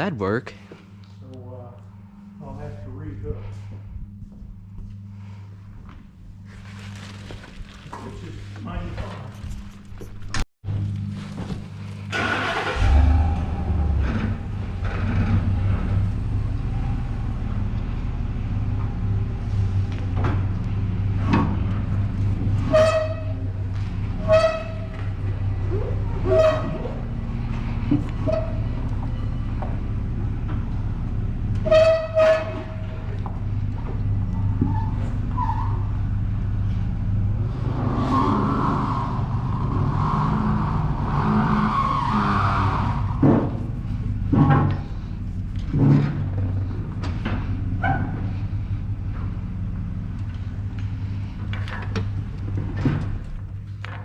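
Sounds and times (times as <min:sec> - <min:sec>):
car engine revving under load: 0:12.0 - 0:22.8, 0:32.4 - 0:53.6.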